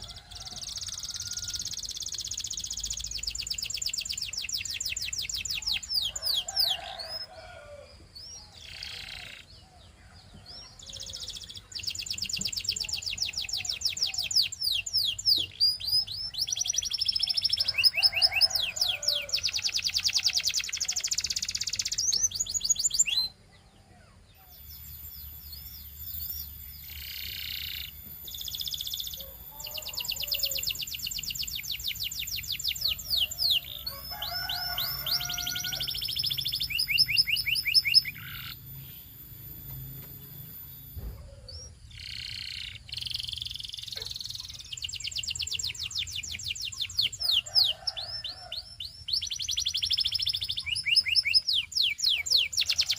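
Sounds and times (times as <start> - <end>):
canary singing trills: 0.0 - 52.9.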